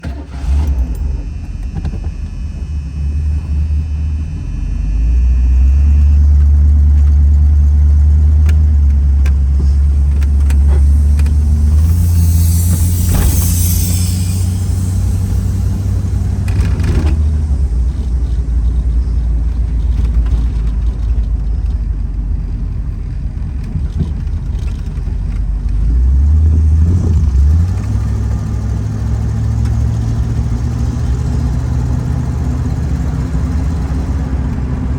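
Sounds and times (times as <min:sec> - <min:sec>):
car engine idling: 0:00.0 - 0:34.9
loud hiss: 0:09.5 - 0:17.4.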